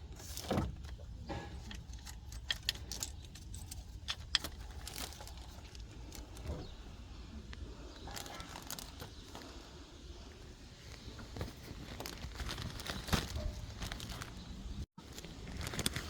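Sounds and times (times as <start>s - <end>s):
metal items clinking and rattling: 0.2s - 6.8s, 10.9s - 16.0s.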